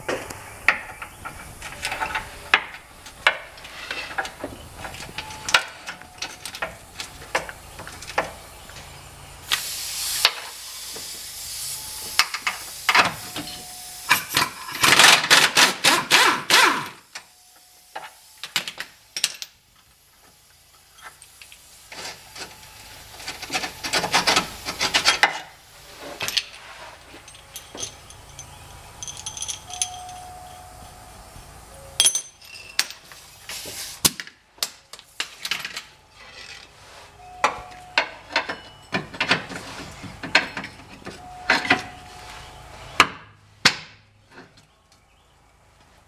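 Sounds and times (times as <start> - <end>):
air hiss: 8.3 - 14.6, 16.2 - 27.1, 33.0 - 34.1
pneumatic wrench rattling: 12.2 - 17.1.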